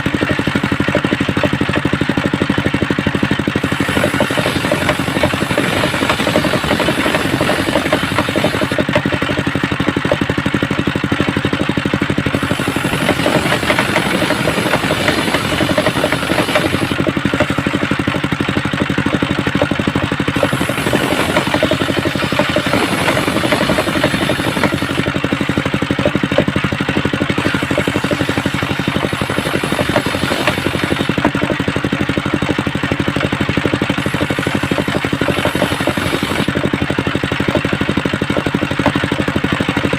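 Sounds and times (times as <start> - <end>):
saw bench engine running: 0.0 - 39.9.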